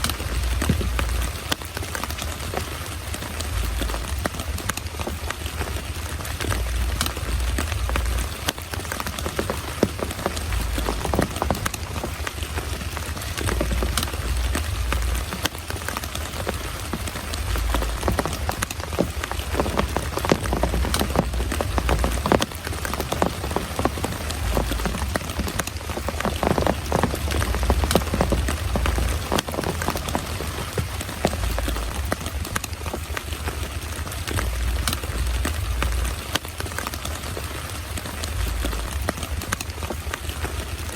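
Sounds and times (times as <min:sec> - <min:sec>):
heavy rain pouring: 0:00.0 - 0:40.9
large raindrops tapping: 0:00.0 - 0:40.9
low rumble: 0:03.3 - 0:04.7, 0:05.8 - 0:08.7, 0:09.6 - 0:32.6, 0:33.5 - 0:36.4.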